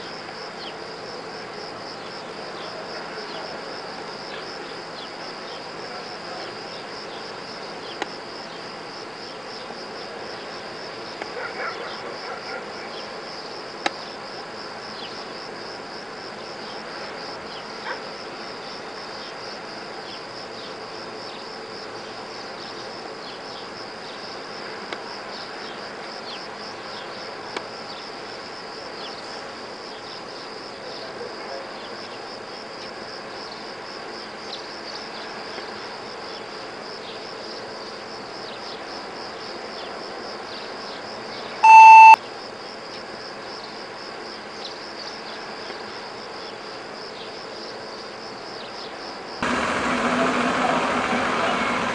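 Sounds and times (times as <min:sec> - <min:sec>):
insects chirping: 0:00.0 - 0:49.4.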